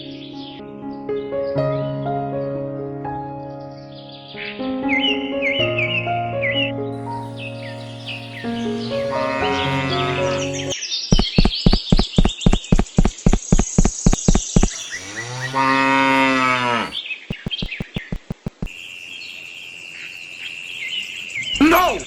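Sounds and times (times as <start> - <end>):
cow mooing: 9.0 - 10.7, 14.9 - 17.0
sharp clicks: 11.1 - 14.8, 17.3 - 18.7.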